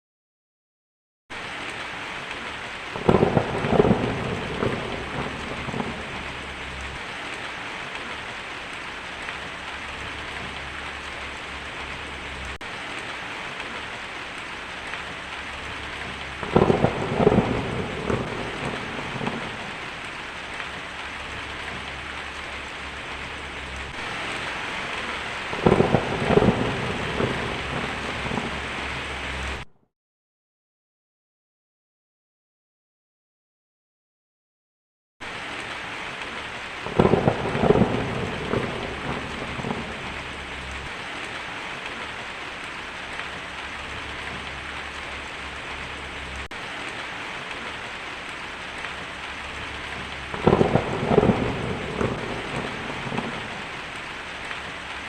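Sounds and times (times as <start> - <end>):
heavy rain on tin roof: 1.3 - 29.7, 35.2 - 55.0
thunder rolling: 2.9 - 7.5, 15.5 - 29.7, 36.8 - 40.9, 49.0 - 54.0.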